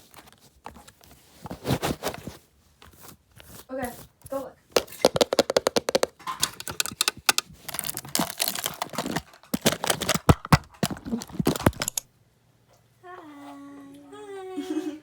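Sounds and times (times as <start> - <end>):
small items crinkling and clicking: 3.9 - 12.1.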